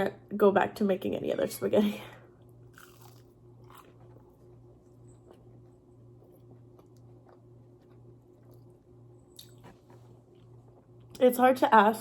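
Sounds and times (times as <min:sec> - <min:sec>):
steady low hum: 0:00.0 - 0:12.0
chewing food: 0:02.7 - 0:11.2.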